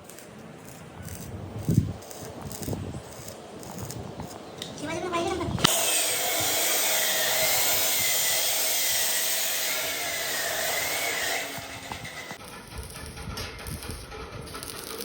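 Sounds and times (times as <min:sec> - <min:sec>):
power tool working metal: 0:05.6 - 0:12.4.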